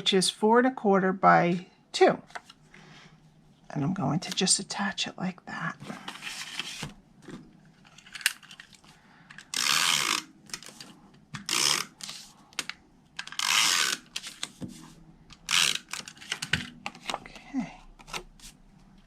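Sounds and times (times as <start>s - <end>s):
tape runner zipping across paper: 9.6s - 10.3s, 11.4s - 12.3s, 13.3s - 14.5s.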